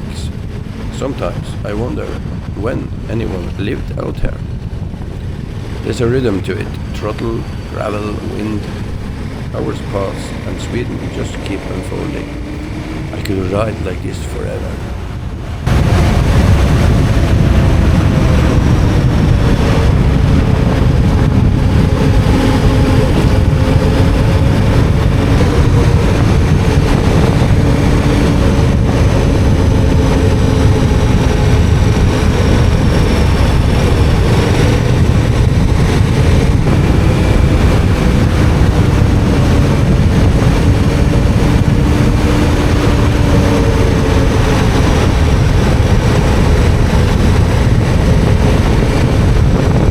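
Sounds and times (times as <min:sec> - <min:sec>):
tyres rumbling on gravel: 0:00.0 - 0:15.0
wind: 0:00.0 - 0:49.9
motorcycle engine cruising: 0:04.2 - 0:49.9.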